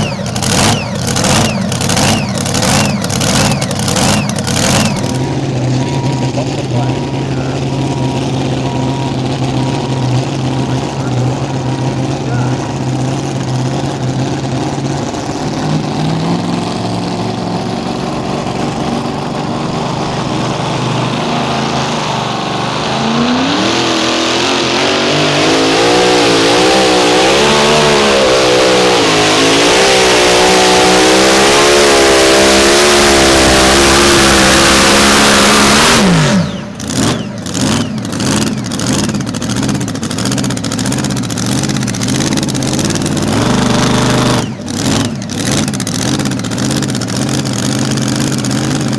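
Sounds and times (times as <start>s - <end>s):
tractor engine revving: 0.0s - 5.3s, 15.4s - 48.9s.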